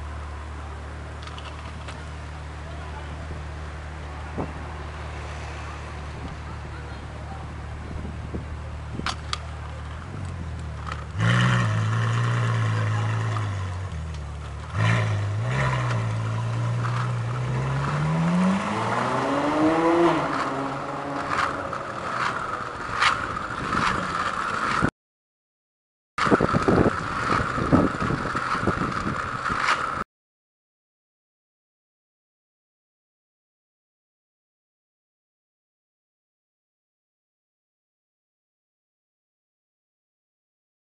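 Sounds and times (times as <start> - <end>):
car engine idling and accelerating: 0.0 - 24.9, 26.2 - 30.0.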